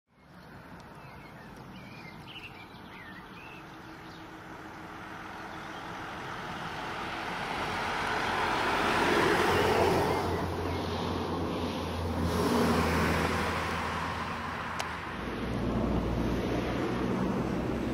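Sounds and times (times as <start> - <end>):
small birds chirping: 0.1 - 6.3, 9.4 - 12.0
vehicle passing: 0.6 - 17.9.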